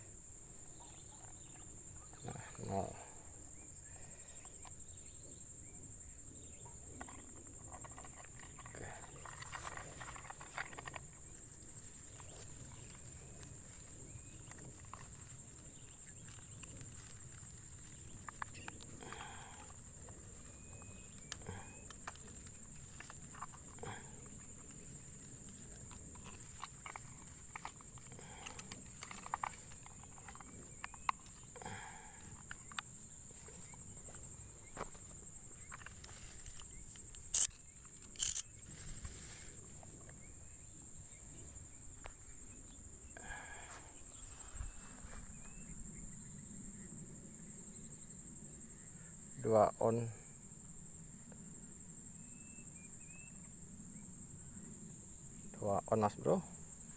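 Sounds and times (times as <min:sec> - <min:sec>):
high-pitched insect drone: 0:00.0 - 0:56.9
small clicks and knocks: 0:19.6 - 0:39.1.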